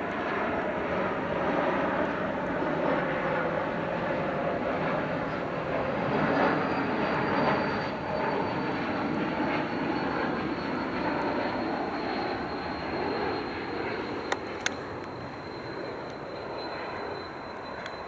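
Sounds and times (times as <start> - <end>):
jet engines roaring: 0.0 - 18.0
high engine whine: 4.8 - 18.0.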